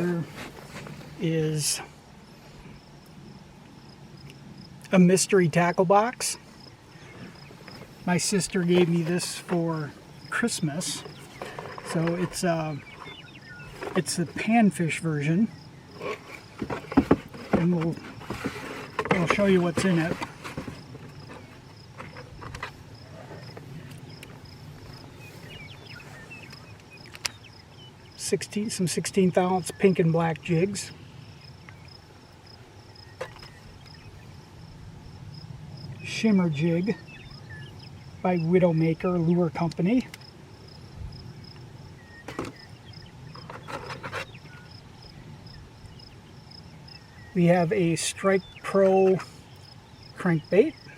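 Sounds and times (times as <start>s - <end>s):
insects chirping: 0.0s - 50.9s
handling rustles and clicks: 10.6s - 14.4s, 16.0s - 27.5s.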